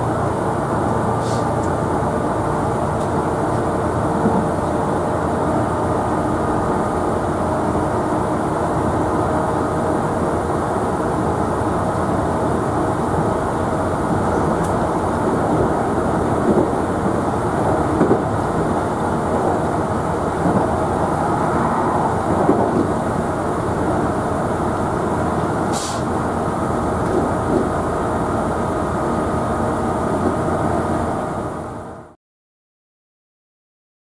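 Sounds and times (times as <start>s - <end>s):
train wheels rumbling on rail: 0.0s - 32.2s
short hiss: 1.2s - 1.5s, 25.7s - 26.1s.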